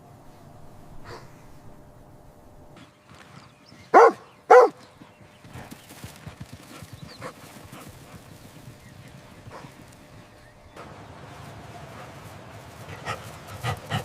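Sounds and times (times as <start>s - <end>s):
dog barking: 3.9s - 4.8s.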